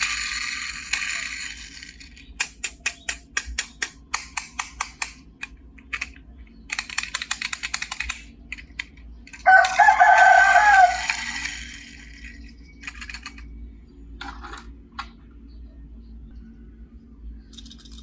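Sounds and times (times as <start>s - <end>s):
sharp clicks: 0.0s - 13.5s.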